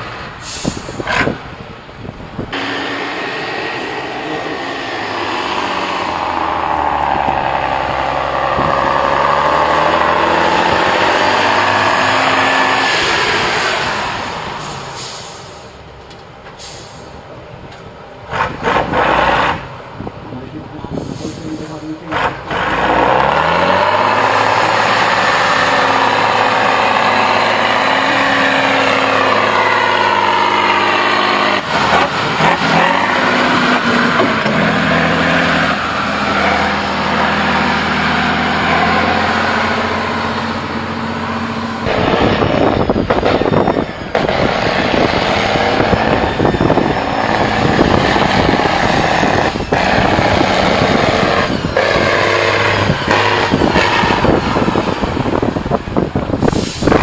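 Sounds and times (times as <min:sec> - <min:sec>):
model truck motors whining: 0:21.9 - 0:57.0
rough rattle of driving: 0:38.6 - 0:57.0.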